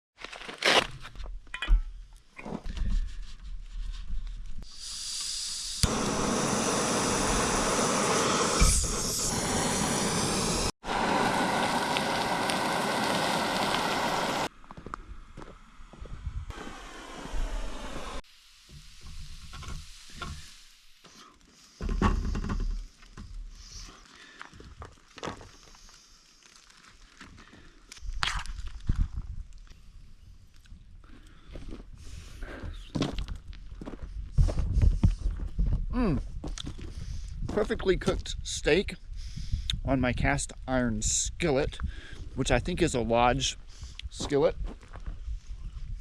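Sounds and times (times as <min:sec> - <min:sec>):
steak sizzling in skillet: 0:05.3 - 0:14.5, 0:18.2 - 0:21.1.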